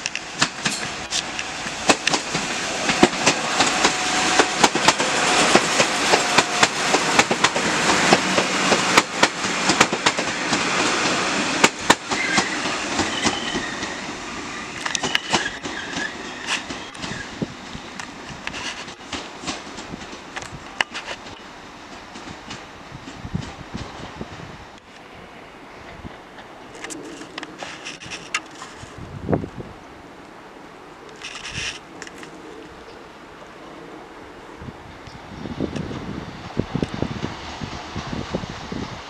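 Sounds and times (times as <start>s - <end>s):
wheels clicking over rail joints: 0.0s - 14.0s, 14.7s - 24.1s, 25.8s - 29.0s, 31.0s - 33.0s
train rumbling past: 0.0s - 39.0s
thin wheel squeals: 12.1s - 14.1s, 15.0s - 17.3s.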